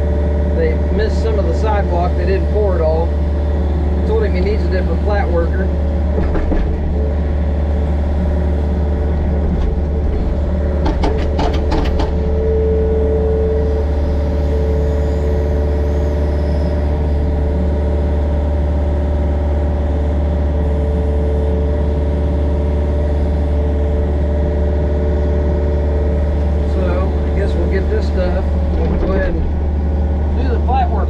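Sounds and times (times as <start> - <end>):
excavator diesel engine running: 0.0 - 31.0
metal clanks: 9.4 - 12.4.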